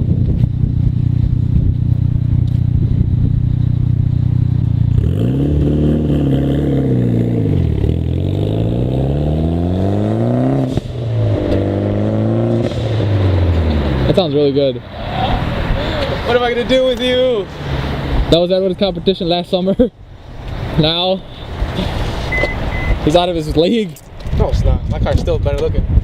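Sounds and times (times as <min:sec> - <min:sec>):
car engine idling and revving: 0:00.0 - 0:19.4.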